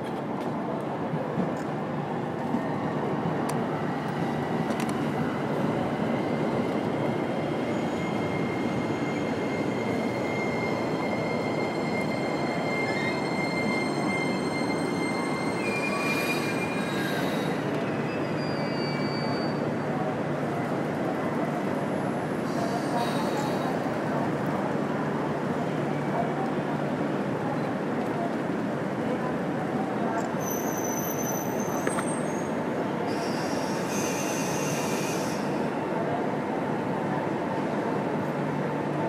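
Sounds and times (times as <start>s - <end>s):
train wheels squealing on rail: 5.2s - 20.2s, 21.7s - 23.9s, 30.1s - 35.9s.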